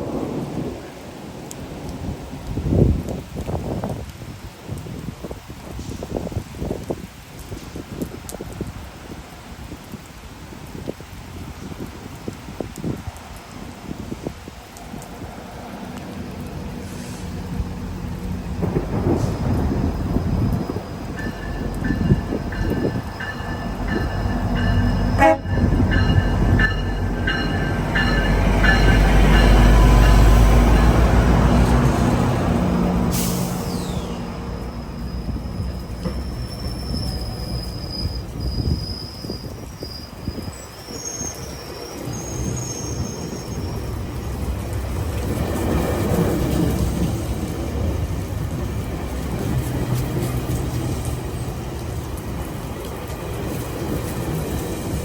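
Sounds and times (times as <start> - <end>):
train rumble: 4.7 - 55.0
train wheels squealing: 18.6 - 31.6, 33.2 - 44.1
train bell ringing: 19.7 - 31.6.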